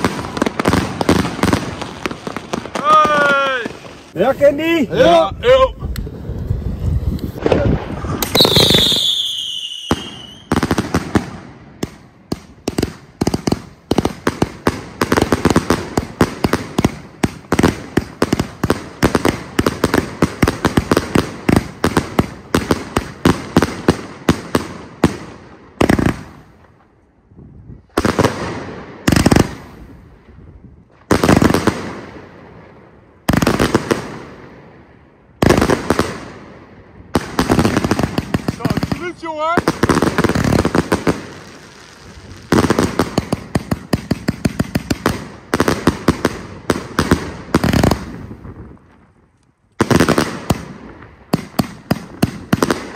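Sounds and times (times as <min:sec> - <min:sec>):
fireworks bangs: 0:00.0 - 0:26.9, 0:27.8 - 0:49.1, 0:49.8 - 0:52.9
firework falling whistle: 0:07.4 - 0:10.5.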